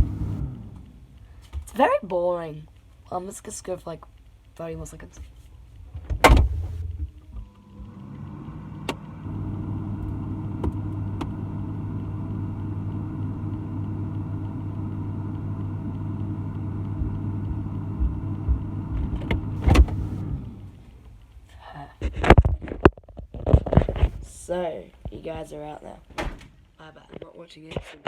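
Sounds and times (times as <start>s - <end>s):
refrigerator motor hum: 0.0s - 2.5s, 5.6s - 21.5s.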